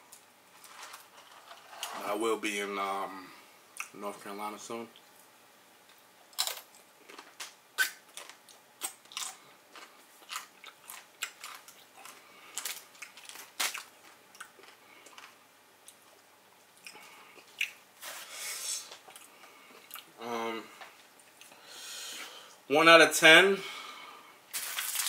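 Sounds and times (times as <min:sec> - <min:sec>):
crunchy taco shell chewing: 0:06.3 - 0:16.0.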